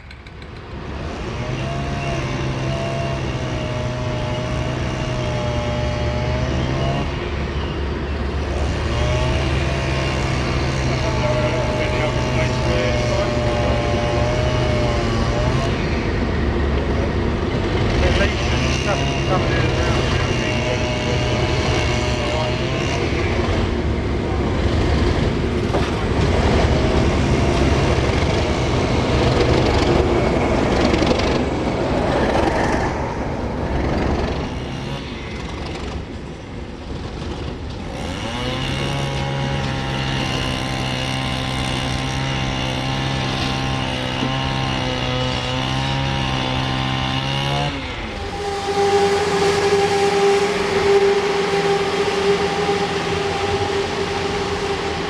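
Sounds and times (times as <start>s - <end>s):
steady engine drone: 0.0s - 55.0s
steady whine: 6.0s - 55.0s
train rumbling past: 15.2s - 41.7s, 47.8s - 55.0s.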